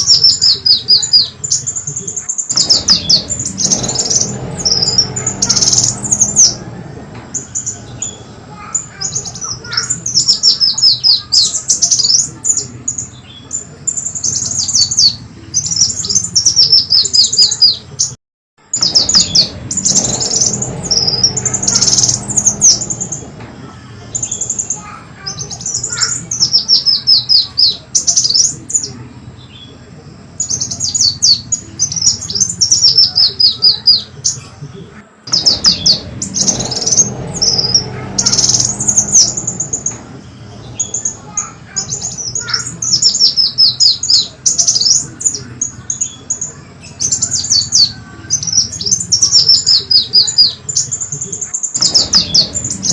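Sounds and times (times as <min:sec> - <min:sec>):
low hum: 0:00.0 - 0:17.3, 0:18.6 - 0:52.9
recorded bird song chips and trills: 0:00.0 - 0:52.9.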